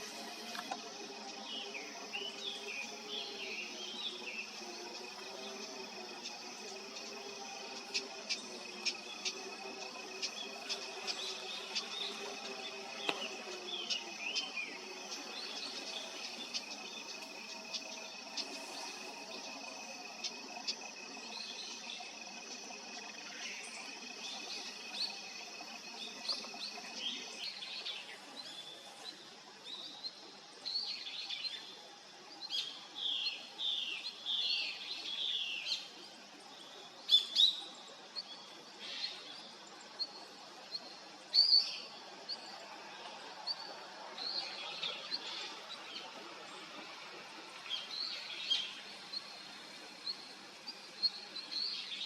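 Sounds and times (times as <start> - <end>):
small birds chirping: 0.0 - 30.1.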